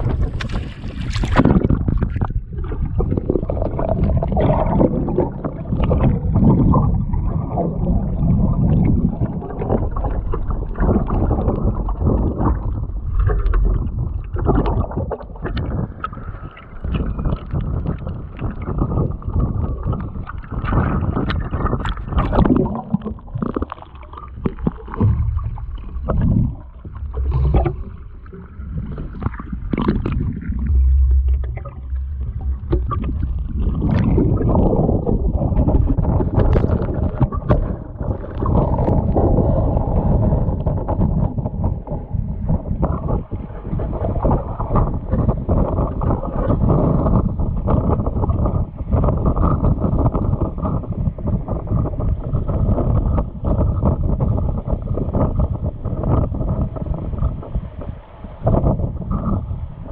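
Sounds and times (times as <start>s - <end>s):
wind buffeting microphone: 0.0s - 23.7s, 24.3s - 59.9s
water sloshing and splashing: 0.0s - 41.9s.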